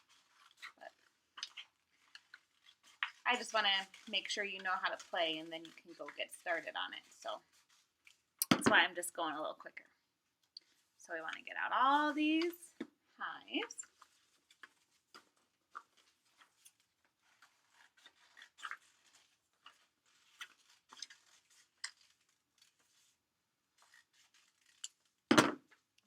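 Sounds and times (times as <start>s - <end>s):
paper rustling: 0.0s - 8.4s, 13.5s - 25.2s.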